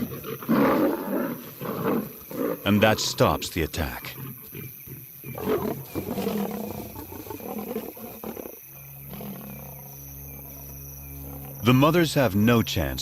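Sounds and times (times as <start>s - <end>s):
lions snarling and growling: 0.0s - 11.7s
steady low drone: 8.7s - 13.0s.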